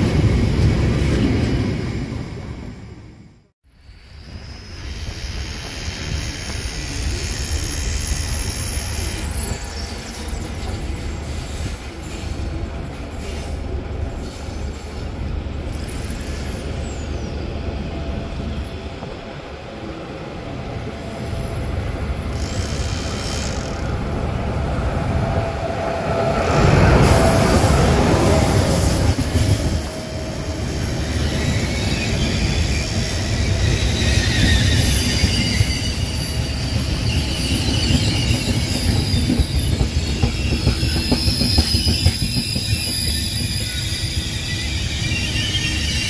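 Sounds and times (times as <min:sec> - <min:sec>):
train wheels rumbling on rails: 0:04.0 - 0:46.0
faint high wheel squeals: 0:31.2 - 0:46.0.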